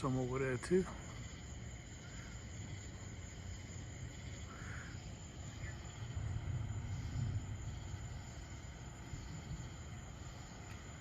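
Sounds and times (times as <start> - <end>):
insect chirring: 0.0 - 11.0
short insect chirp: 0.0 - 11.0
low rumble: 2.6 - 11.0.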